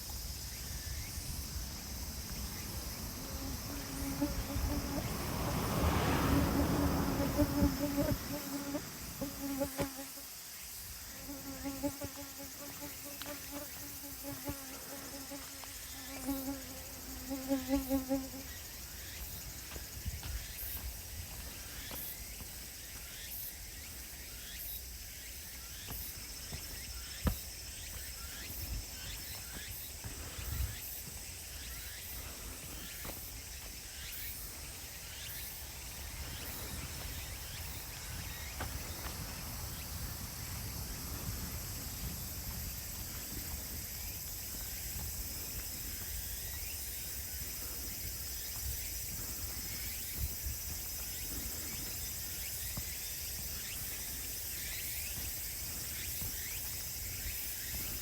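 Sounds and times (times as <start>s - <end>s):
insects chorus: 0.0s - 58.0s
footsteps on path: 18.7s - 23.3s, 25.8s - 58.0s.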